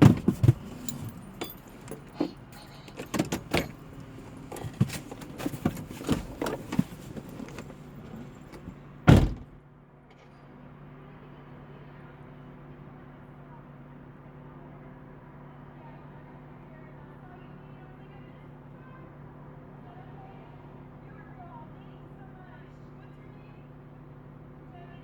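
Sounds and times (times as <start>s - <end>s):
truck engine humming: 0.0s - 9.6s
clattering rattles and knocks: 0.0s - 10.3s
loud thump: 9.1s - 9.6s.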